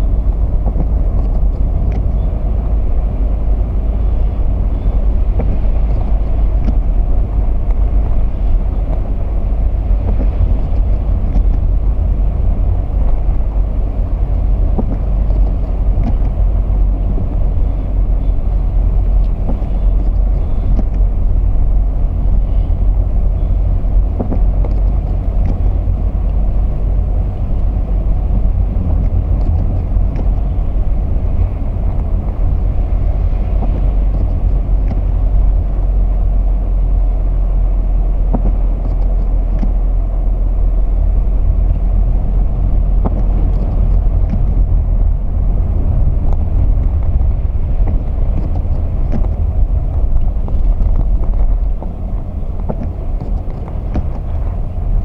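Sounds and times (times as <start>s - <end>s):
car engine and road noise: 0.0s - 55.0s
faint ticks: 8.8s - 35.9s, 38.3s - 39.8s, 45.7s - 54.6s.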